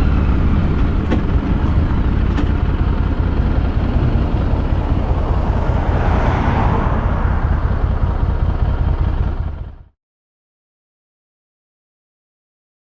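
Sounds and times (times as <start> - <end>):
motorcycle engine rumbling: 0.0 - 9.9.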